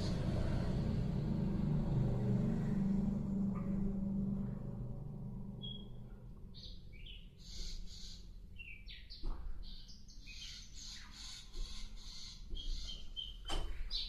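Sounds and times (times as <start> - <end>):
faint low hum: 0.0 - 10.6
bird chirps and trills: 5.6 - 14.0.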